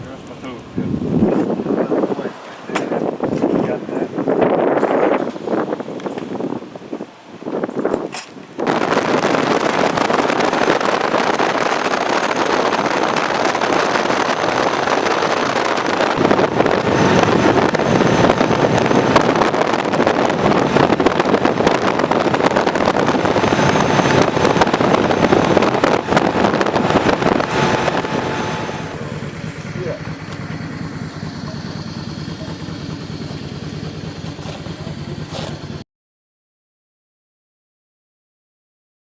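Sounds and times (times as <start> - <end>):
wind and road noise: 0.0 - 35.8
motorcycle engine: 8.7 - 35.8.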